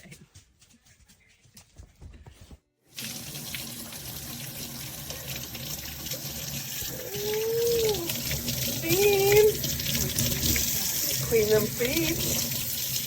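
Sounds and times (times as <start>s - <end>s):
water running from a tap: 2.9s - 13.0s.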